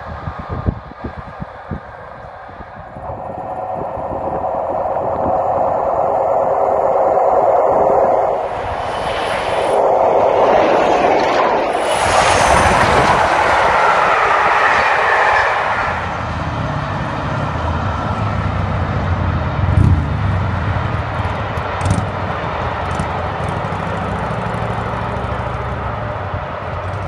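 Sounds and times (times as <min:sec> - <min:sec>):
passenger train passing: 0:00.0 - 0:27.0.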